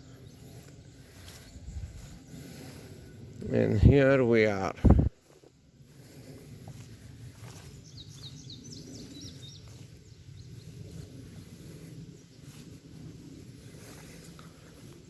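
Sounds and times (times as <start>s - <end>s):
wind rumble: 0.0s - 15.0s
leaves rustling: 0.1s - 15.0s
bird chirping: 7.6s - 10.8s.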